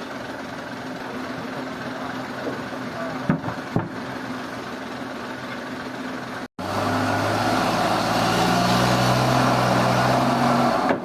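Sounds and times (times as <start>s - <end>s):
heavy engine running: 0.0s - 11.0s.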